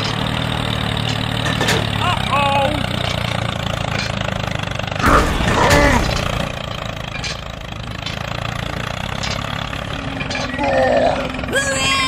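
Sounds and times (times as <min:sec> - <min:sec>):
tractor engine idling: 0:00.0 - 0:12.0
person exclaiming: 0:10.6 - 0:12.0.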